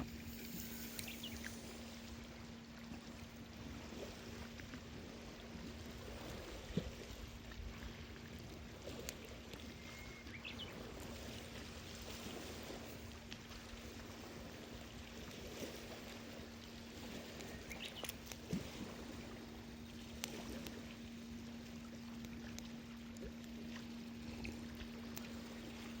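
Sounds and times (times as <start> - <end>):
short rising chirps: 0.0 - 2.1
faint steady hum: 0.0 - 26.0
sea water washing ashore: 0.0 - 26.0.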